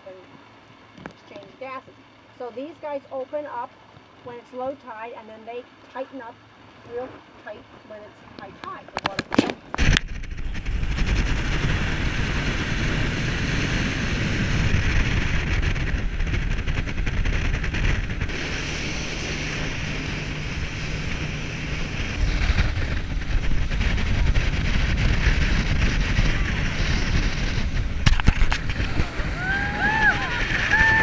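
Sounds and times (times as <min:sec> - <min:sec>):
boat motor running: 0:08.3 - 0:31.0
wind rushing over microphone: 0:09.0 - 0:31.0
water noise: 0:09.1 - 0:31.0.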